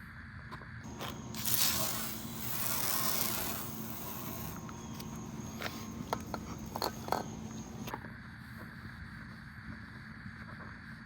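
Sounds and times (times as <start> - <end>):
aerosol can spraying: 0.9 - 7.8.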